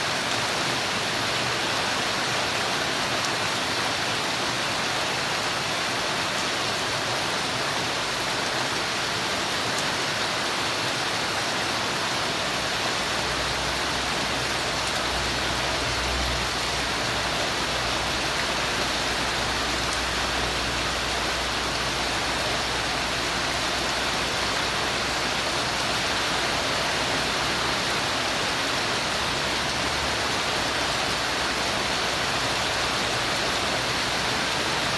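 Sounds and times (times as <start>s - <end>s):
steady rainfall: 0.0s - 34.9s.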